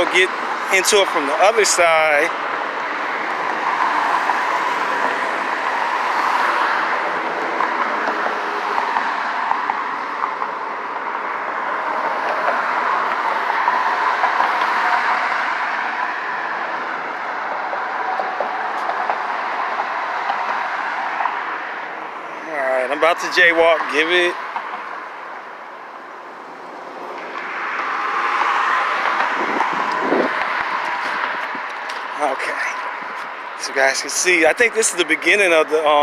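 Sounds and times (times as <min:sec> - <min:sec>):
road traffic noise: 0:00.0 - 0:36.0.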